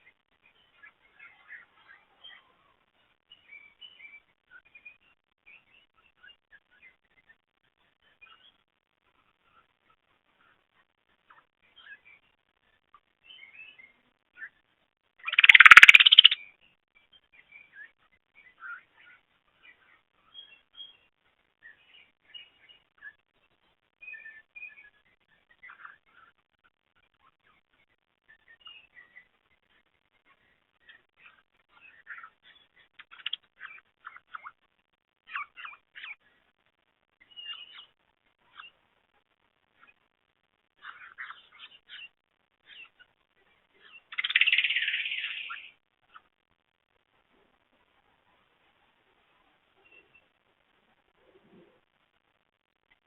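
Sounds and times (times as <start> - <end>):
birds chirping faintly: 0.0 - 53.0
loud trilling bird chatter: 15.2 - 16.5, 43.8 - 46.3.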